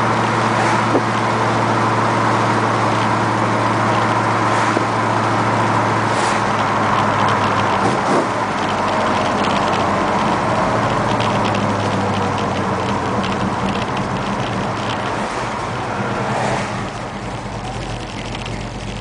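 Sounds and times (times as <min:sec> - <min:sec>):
car engine droning: 0:00.0 - 0:19.0
road noise: 0:00.0 - 0:19.0.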